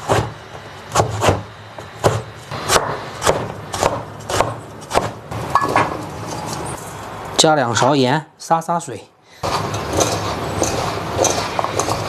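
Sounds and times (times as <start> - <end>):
knife chopping vegetable: 0.0 - 5.2, 9.4 - 12.0.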